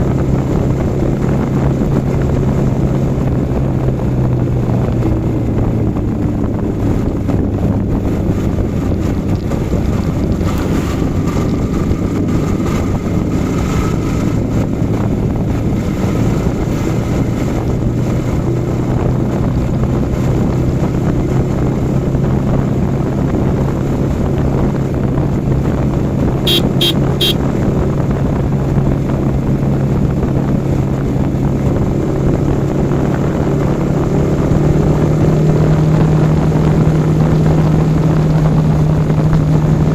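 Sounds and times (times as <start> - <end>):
motorcycle engine cruising: 0.0 - 39.9
wind buffeting microphone: 0.0 - 39.9
short high beeps: 26.5 - 27.4.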